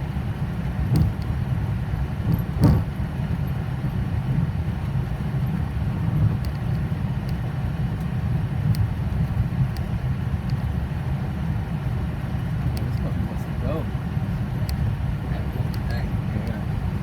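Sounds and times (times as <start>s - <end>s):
jet engine rumbling: 8.9s - 17.0s.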